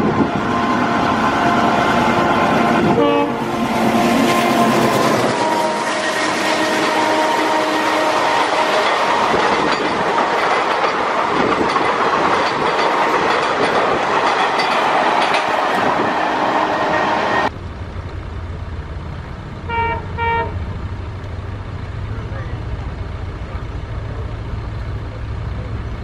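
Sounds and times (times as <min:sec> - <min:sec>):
diesel locomotive engine humming: 0:00.0 - 0:26.0
locomotive horn toots: 0:00.1 - 0:09.7, 0:19.7 - 0:20.6
wheels clattering over rail joints: 0:08.2 - 0:16.2.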